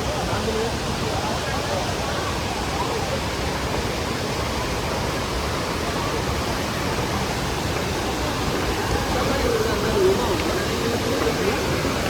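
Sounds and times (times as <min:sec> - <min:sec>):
waterfall and rapids rushing: 0:00.0 - 0:12.0.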